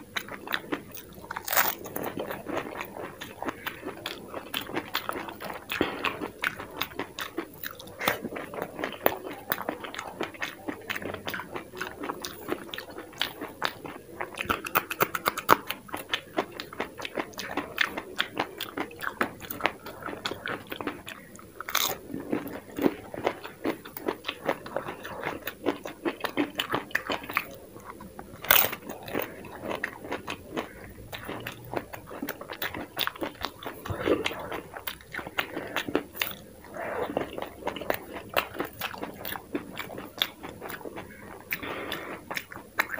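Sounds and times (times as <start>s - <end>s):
wet soft chewing: 0.0s - 42.9s
crunching crisp shells: 1.3s - 4.8s, 21.6s - 22.6s, 28.4s - 30.7s.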